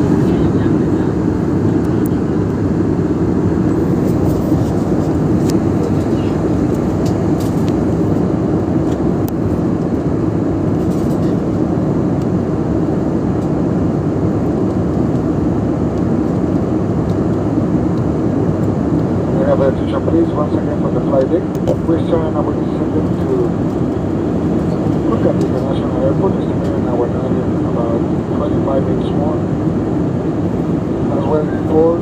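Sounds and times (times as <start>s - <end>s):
airliner cabin engine rush: 0.0s - 32.0s.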